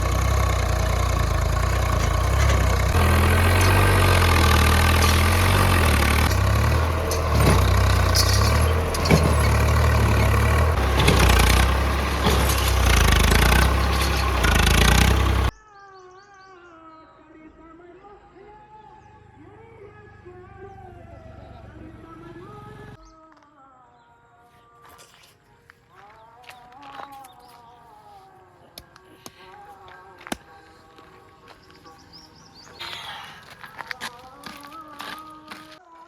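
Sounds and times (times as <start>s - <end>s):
heavy diesel engine running: 0.0s - 15.5s
sharp metallic knocks: 2.0s - 15.5s.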